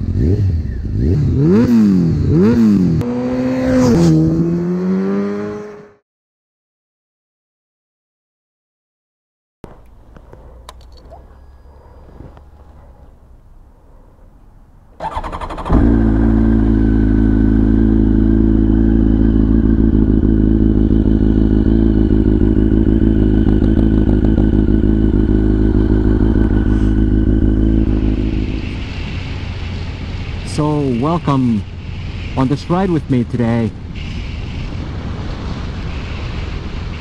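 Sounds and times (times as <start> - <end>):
motorcycle engine idling: 15.0 - 30.4.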